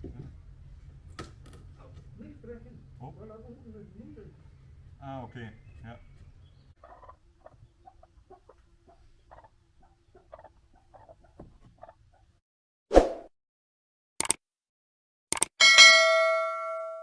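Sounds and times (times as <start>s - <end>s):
chickens clucking: 1.9s - 12.4s.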